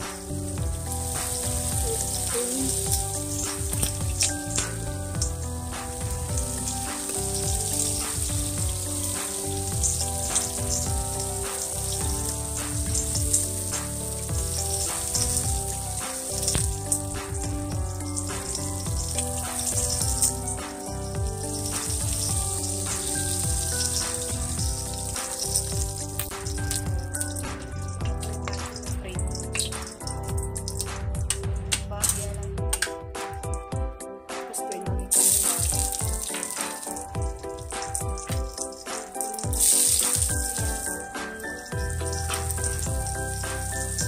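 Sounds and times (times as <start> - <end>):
chicken sizzling in oil: 0.0 - 31.4, 35.0 - 44.0
background music: 0.0 - 44.0
metal tongs clicking on pan: 28.2 - 30.9.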